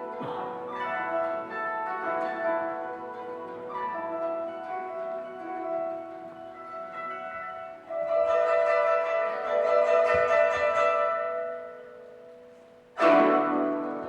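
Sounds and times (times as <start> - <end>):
plucked zither strings: 0.0 - 14.0.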